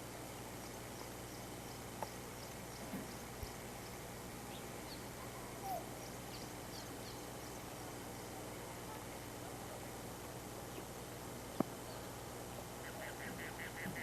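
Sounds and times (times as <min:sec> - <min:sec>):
steady outdoor hiss: 0:00.0 - 0:14.0
animal call: 0:05.4 - 0:05.9.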